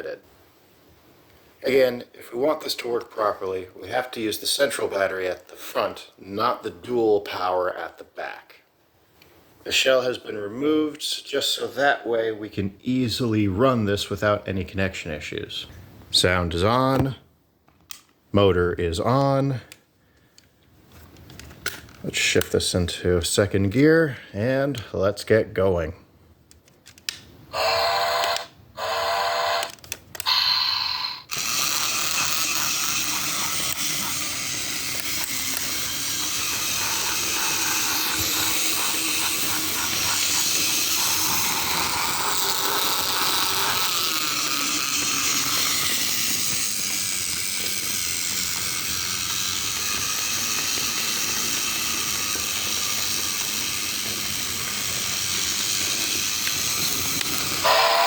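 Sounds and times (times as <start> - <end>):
toy train whistle blasts: 27.5 - 32.4, 57.6 - 58.0
small motor whirring: 27.5 - 58.0
toy train chuffing: 27.5 - 58.0
hissing steam engine sound: 30.3 - 46.5, 50.0 - 58.0.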